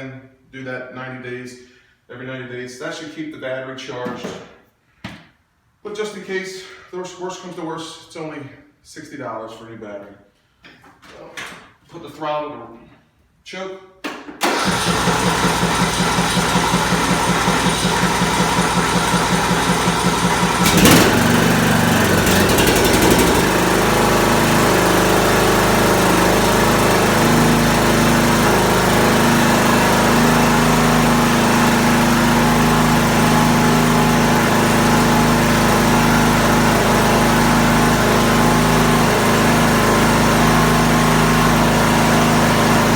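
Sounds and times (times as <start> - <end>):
small gasoline engine running: 14.4 - 42.9.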